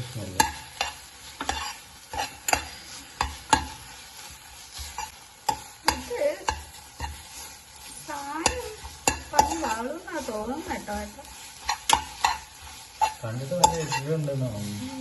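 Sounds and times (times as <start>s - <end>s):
faint sizzle: 0.0s - 15.0s
utensil knocking and scraping pan: 0.4s - 3.8s, 8.3s - 14.4s.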